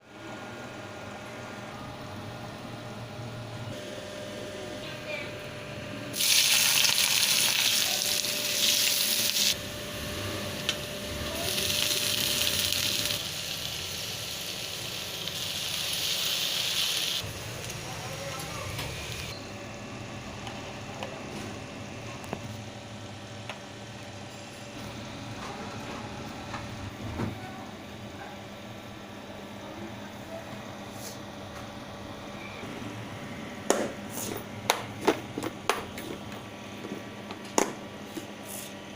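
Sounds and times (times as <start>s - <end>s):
food sizzling in hot oil: 6.2s - 9.6s, 10.6s - 17.4s.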